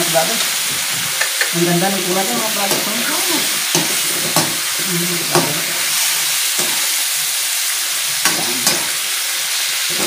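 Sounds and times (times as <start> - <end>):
meat sizzling in hot oil: 0.0 - 10.0
spatula clacking against pan: 3.7 - 4.6.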